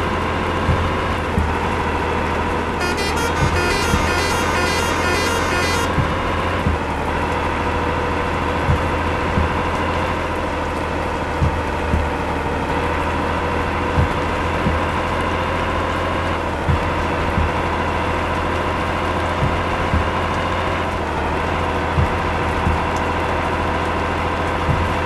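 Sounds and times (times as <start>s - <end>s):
low thumps: 0.0s - 18.2s, 19.2s - 23.6s, 24.6s - 25.0s
steady whine: 0.0s - 23.9s
vehicle road noise: 0.0s - 25.0s.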